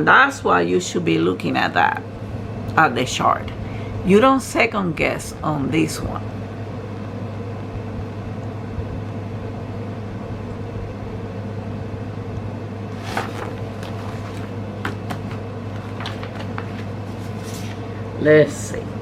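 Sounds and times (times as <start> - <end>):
low background hum: 0.0 - 19.0
handling clicks and rustles: 13.0 - 17.6.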